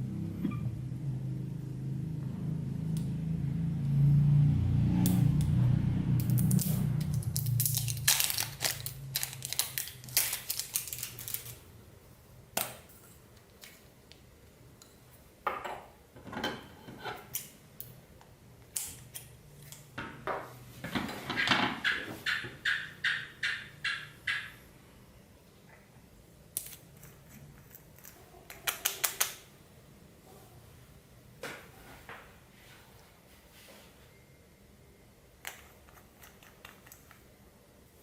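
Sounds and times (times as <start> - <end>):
low hum: 0.0 - 9.2
slime with beads crackling: 6.3 - 11.6.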